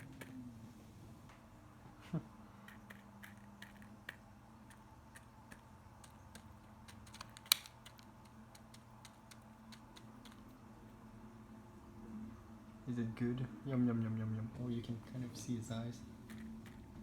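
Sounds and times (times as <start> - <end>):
bird pecking at seeds: 0.0 - 0.6, 2.4 - 11.0, 16.0 - 17.0.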